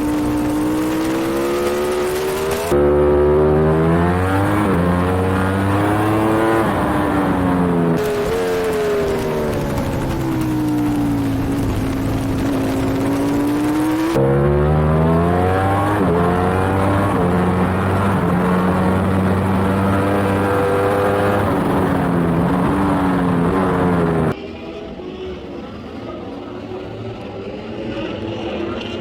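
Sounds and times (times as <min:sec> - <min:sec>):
motorcycle engine at speed: 0:00.0 - 0:24.4
wind rush: 0:05.7 - 0:14.2.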